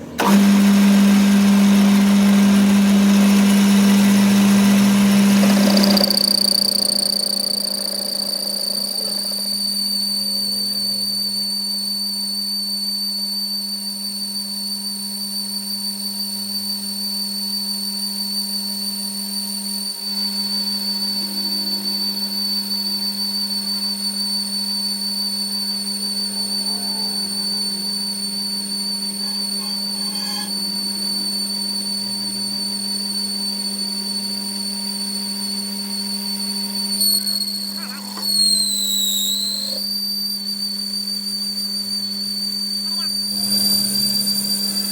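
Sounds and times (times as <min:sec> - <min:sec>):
machine low hum: 0:00.0 - 0:11.7, 0:25.6 - 0:34.3
machine high-pitched whine: 0:00.0 - 0:44.9.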